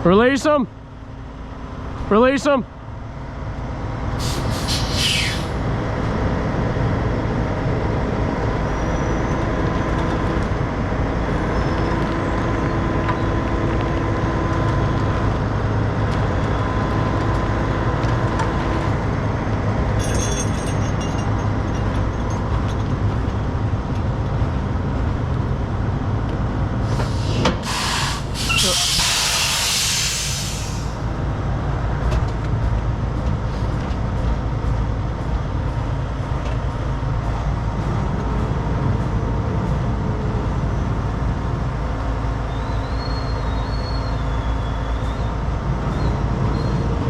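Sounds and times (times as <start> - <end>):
diesel truck engines running: 0.0 - 47.0
air brake hiss: 4.2 - 5.6, 26.8 - 31.0.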